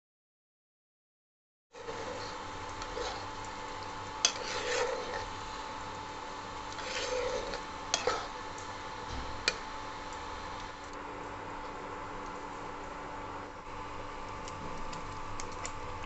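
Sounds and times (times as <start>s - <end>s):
spatula scraping gravy in pan: 1.8s - 5.8s, 6.6s - 8.4s.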